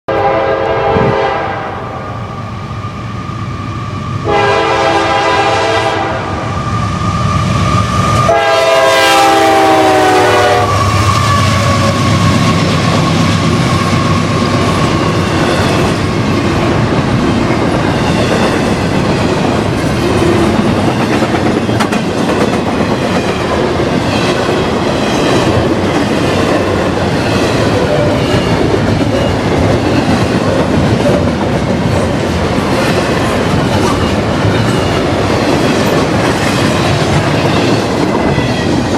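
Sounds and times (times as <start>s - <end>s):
train air horn blasts: 0.1s - 2.1s, 4.2s - 6.5s, 8.2s - 12.0s
railcars rumbling: 0.1s - 38.9s
wheels clacking over rail joints: 17.4s - 38.9s.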